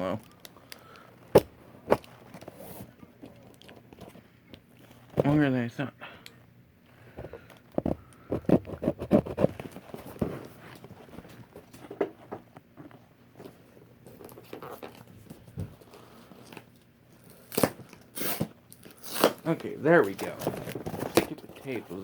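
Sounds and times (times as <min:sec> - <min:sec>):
packing tape pulled off cardboard: 0:16.4 - 0:22.0
tape ripping: 0:17.4 - 0:21.4.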